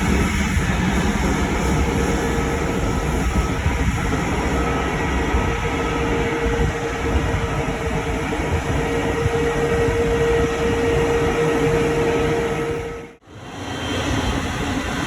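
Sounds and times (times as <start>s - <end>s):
jet engines rumbling with whine: 0.0s - 15.0s.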